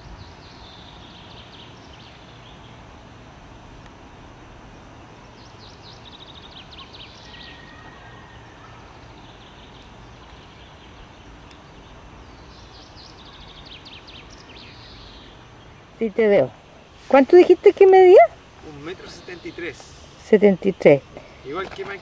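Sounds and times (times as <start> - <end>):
low outdoor rumble: 0.0 - 22.0
songbird trilling: 5.3 - 22.0.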